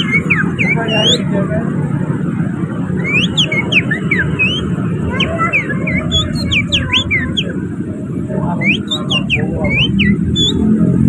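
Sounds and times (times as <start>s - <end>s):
low rumble of traffic: 0.0s - 11.0s
person whistling birdsong: 3.0s - 7.5s, 8.6s - 10.7s.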